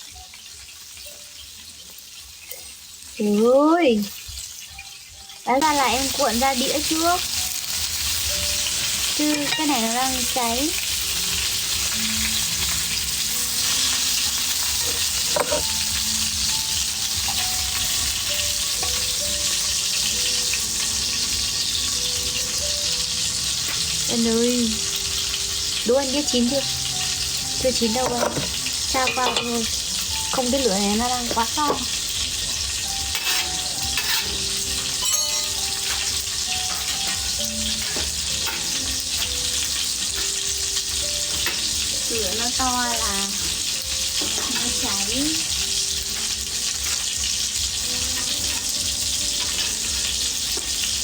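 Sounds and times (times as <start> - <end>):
food sizzling over fire: 0.0 - 51.0
metallic clink: 35.0 - 36.1.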